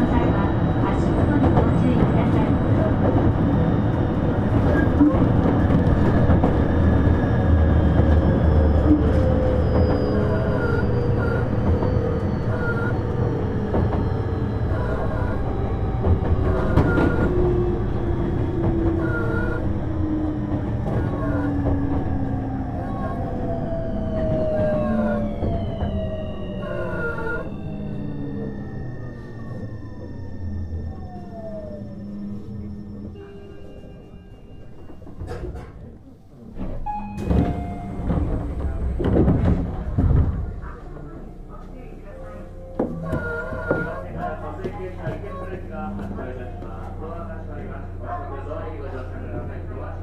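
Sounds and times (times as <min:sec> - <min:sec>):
train wheels on rail: 0:00.0 - 0:35.9, 0:36.5 - 0:47.7
traction motor whine: 0:02.8 - 0:34.0
rail joint clicks: 0:07.9 - 0:22.4, 0:30.9 - 0:36.0.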